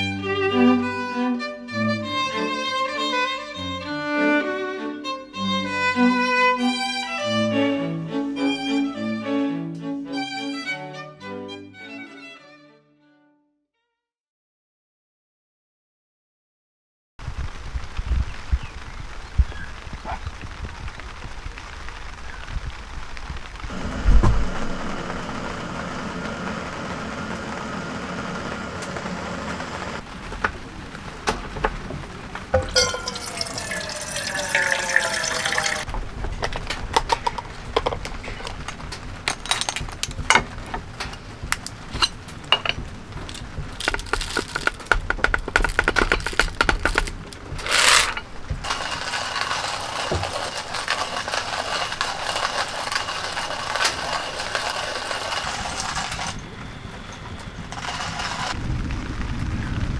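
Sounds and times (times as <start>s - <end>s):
rain hiss: 17.2s - 59.9s
water pouring into container: 32.6s - 35.9s, 43.3s - 44.9s
camp gear clicks and knocks: 36.3s - 48.7s.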